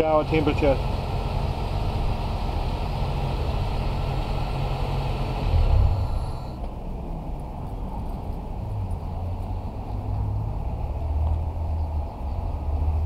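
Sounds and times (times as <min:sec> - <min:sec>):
car engine idling: 0:00.0 - 0:06.8
higher whir: 0:00.0 - 0:06.8.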